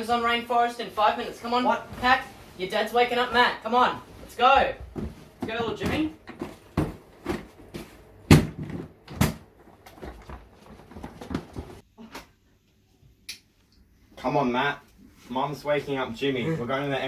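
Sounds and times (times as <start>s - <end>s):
irregular knocks and bumps: 4.6s - 11.8s.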